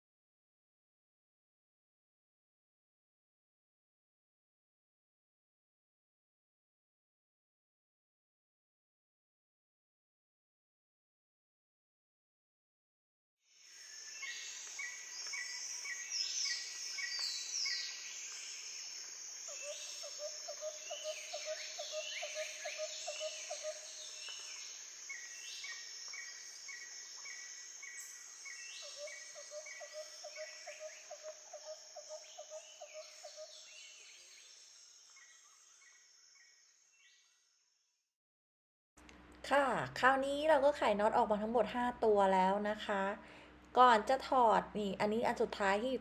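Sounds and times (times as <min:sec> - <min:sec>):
high insect drone: 0:13.5 - 0:37.8.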